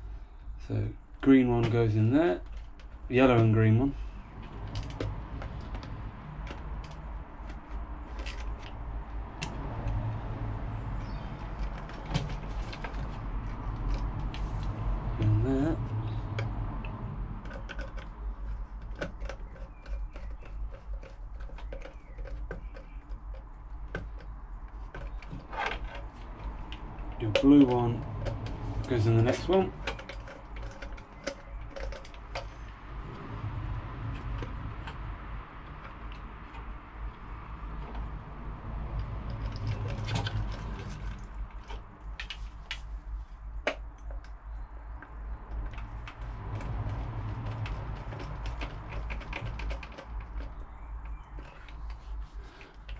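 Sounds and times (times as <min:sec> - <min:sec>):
small clicks and taps: 0:16.0 - 0:32.8, 0:43.6 - 0:52.9.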